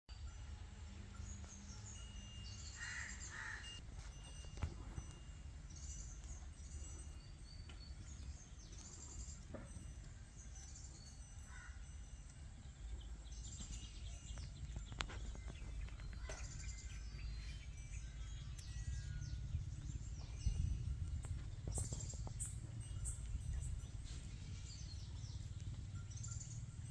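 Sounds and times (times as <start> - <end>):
birds chirping: 0.1 - 26.9
steady low rumble: 11.9 - 26.9.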